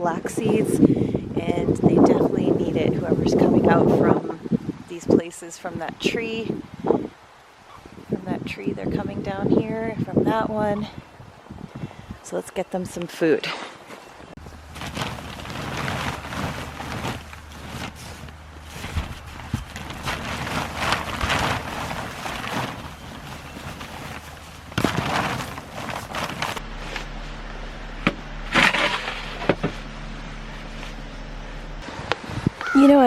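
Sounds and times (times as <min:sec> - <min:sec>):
crunching and rustling in snow: 0:14.4 - 0:27.6.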